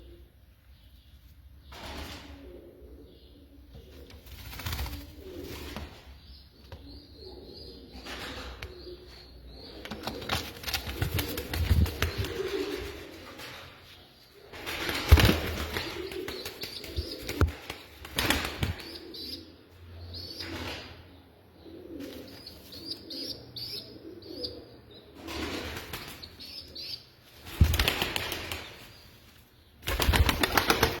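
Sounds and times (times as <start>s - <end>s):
pigeons cooing: 2.0s - 27.0s
pigeon wings flapping: 4.2s - 5.1s, 9.9s - 12.8s, 14.6s - 18.8s, 27.5s - 28.7s, 29.8s - 31.0s.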